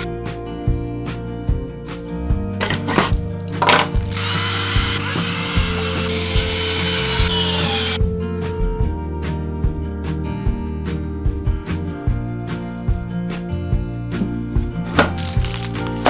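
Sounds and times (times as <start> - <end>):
background music: 0.0 - 16.0
power drill running: 2.6 - 8.0, 14.6 - 16.0.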